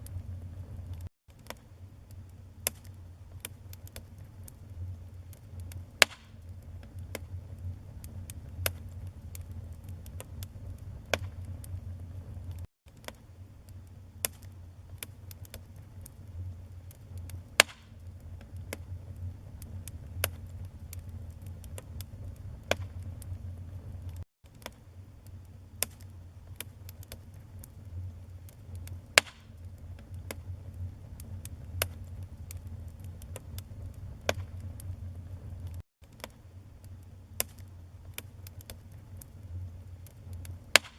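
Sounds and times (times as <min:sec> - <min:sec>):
burning logs crackling and popping: 0:00.0 - 0:40.9
flames rumbling: 0:00.0 - 0:40.9.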